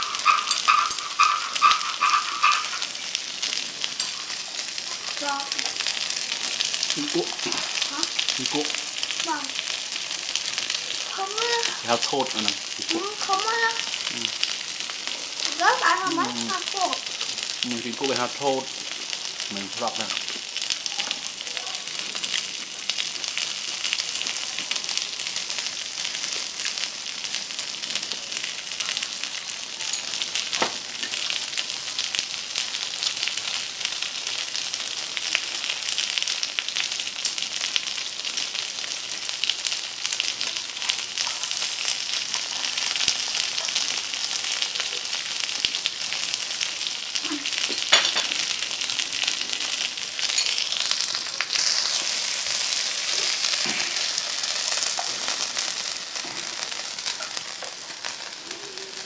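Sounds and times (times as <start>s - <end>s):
fat popping: 0.0s - 3.0s
meat sizzling on grill pan: 0.0s - 59.0s.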